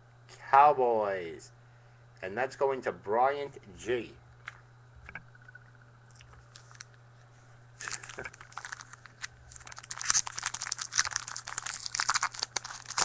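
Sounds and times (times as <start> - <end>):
faint low hum: 0.0 - 13.0
wrapper tearing and crinkling: 7.8 - 13.0.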